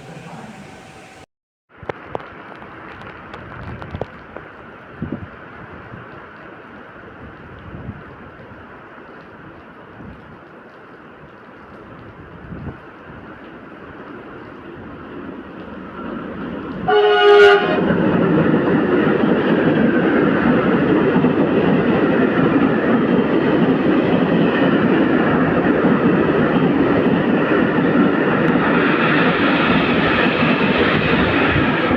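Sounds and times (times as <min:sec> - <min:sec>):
train wheels rolling on rails: 0:00.0 - 0:31.9
train horn blast: 0:16.8 - 0:17.9.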